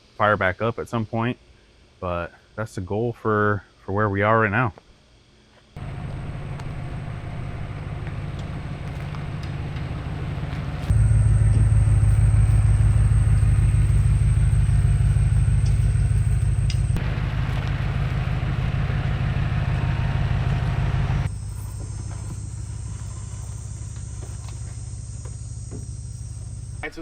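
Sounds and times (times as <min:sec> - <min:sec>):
vehicle engine rumbling: 0:05.8 - 0:27.0.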